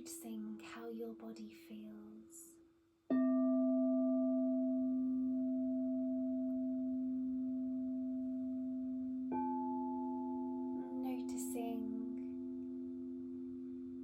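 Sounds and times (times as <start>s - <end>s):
crystal singing bowl ringing: 3.1s - 14.0s
higher singing bowl tone: 3.3s - 14.0s.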